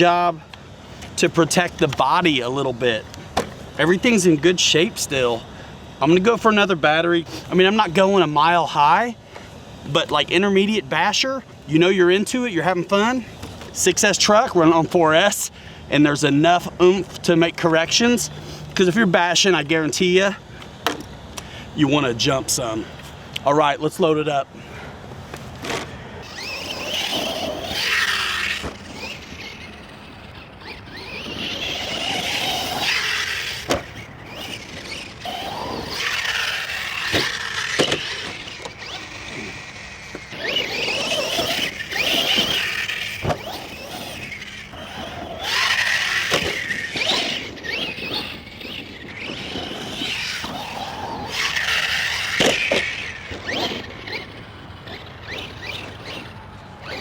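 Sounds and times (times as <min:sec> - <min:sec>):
electric motor whining: 0:25.2 - 0:57.0.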